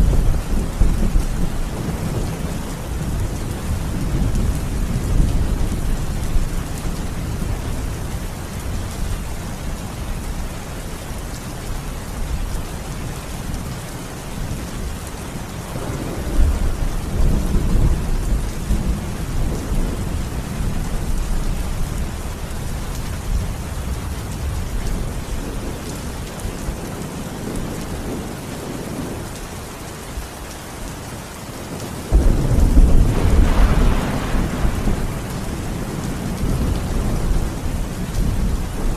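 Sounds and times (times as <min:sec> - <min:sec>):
steady rain falling: 0:00.0 - 0:38.9
deep rolling thunder: 0:15.8 - 0:21.6, 0:32.1 - 0:38.9.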